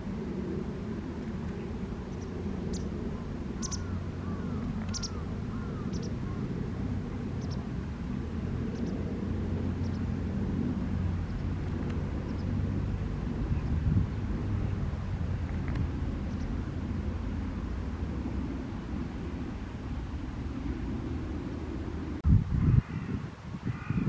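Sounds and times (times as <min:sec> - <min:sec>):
birds chirping: 0:01.5 - 0:06.5, 0:07.4 - 0:07.7, 0:09.8 - 0:10.1, 0:16.2 - 0:16.6.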